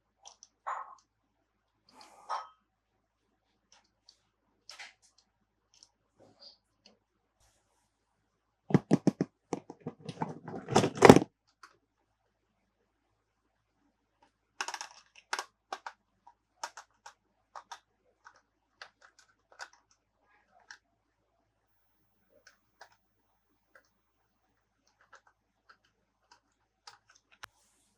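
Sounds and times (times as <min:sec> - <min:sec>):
plastic toy pieces clattering: 0:14.6 - 0:15.9.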